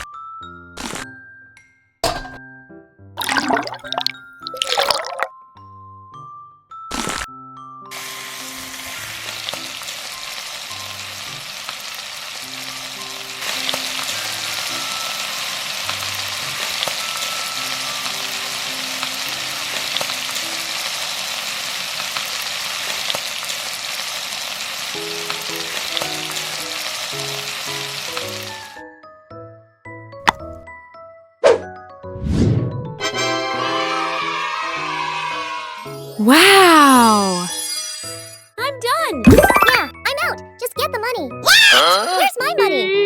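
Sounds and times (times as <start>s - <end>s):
food sizzling in hot oil: 7.9s - 28.8s.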